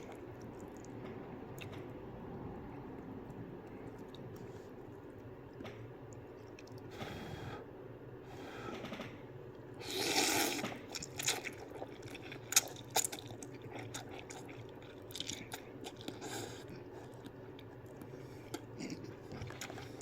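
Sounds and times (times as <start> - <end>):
wet chewing: 0.0 - 1.9, 3.6 - 6.9, 9.8 - 20.0.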